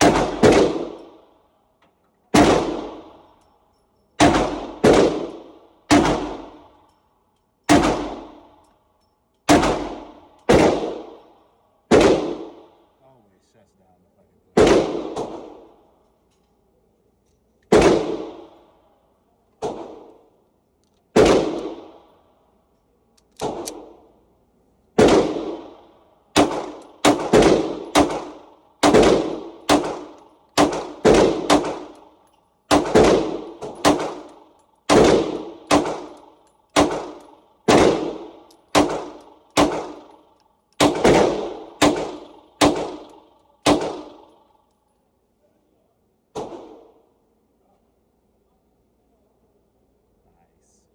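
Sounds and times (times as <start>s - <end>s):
rifle shots: 0.0s - 1.3s, 2.3s - 3.3s, 4.2s - 6.8s, 7.7s - 8.6s, 9.5s - 12.8s, 14.6s - 15.8s, 17.7s - 18.7s, 19.6s - 20.3s, 21.1s - 22.1s, 23.4s - 24.2s, 24.9s - 44.6s, 46.4s - 47.0s.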